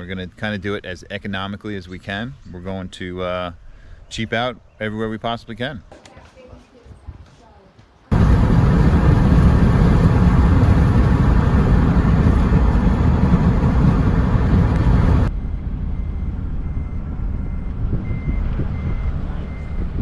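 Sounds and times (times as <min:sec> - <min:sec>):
vehicle and wind rumble: 0:08.1 - 0:20.0.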